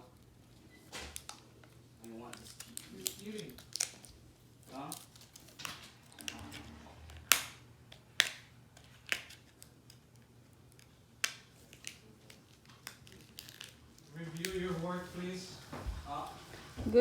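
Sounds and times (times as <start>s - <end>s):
packaging clicks and crinkling: 0.0s - 15.4s
sharp plastic snaps: 1.0s - 4.1s, 4.7s - 14.5s.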